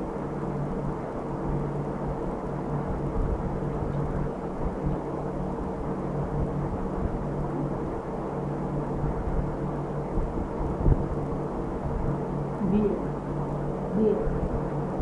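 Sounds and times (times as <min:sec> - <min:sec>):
motor humming steadily: 0:00.0 - 0:15.0.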